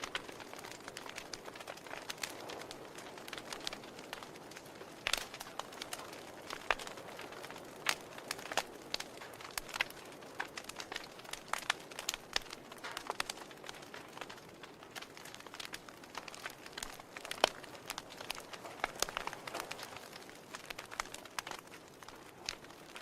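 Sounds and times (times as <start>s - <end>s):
soft fire hiss: 0.0s - 23.0s
wood fire crackling and popping: 0.0s - 23.0s.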